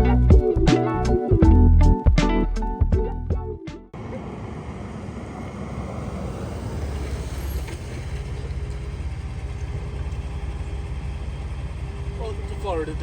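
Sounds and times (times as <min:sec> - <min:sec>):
background music: 0:00.0 - 0:03.9
vehicle engine and road rumble: 0:03.9 - 0:13.0.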